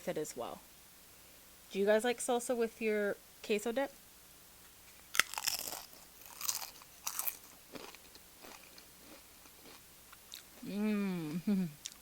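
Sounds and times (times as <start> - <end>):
chips crunching while chewed: 5.1 - 10.5.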